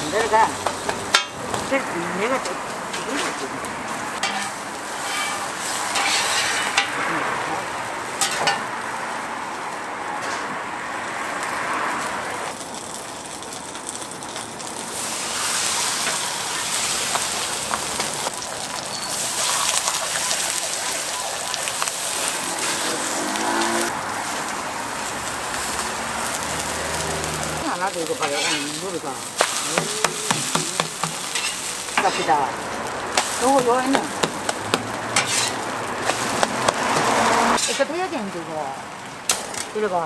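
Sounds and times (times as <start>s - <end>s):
batter sizzling in oil: 0.0s - 40.0s.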